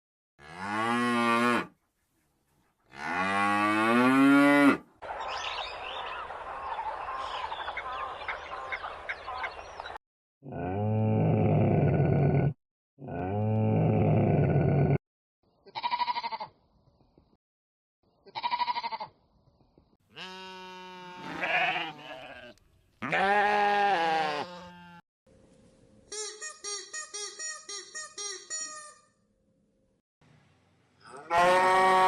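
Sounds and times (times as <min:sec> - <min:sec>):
wavering bleats: 0:20.1 - 0:25.0, 0:31.1 - 0:32.0.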